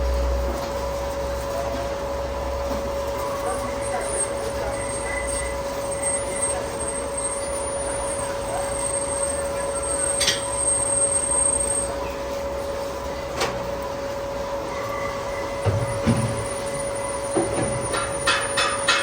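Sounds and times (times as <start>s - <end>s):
boring machine humming: 0.0s - 19.0s.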